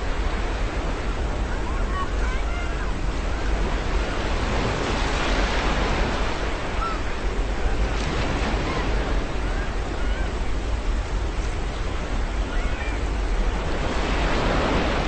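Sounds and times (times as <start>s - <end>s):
ocean surf on shore: 0.0s - 15.0s
seagulls calling: 6.7s - 7.2s.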